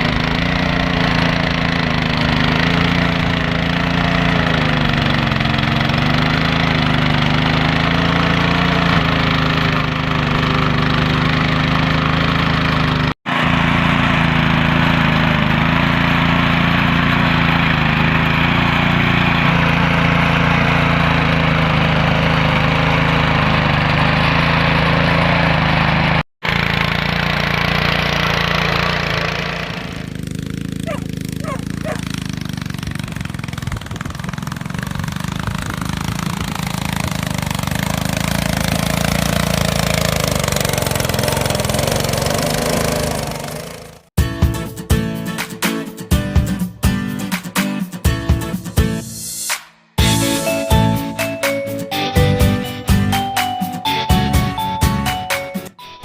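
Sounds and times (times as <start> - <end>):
garden tiller engine running: 0.0 - 47.4, 50.0 - 55.2.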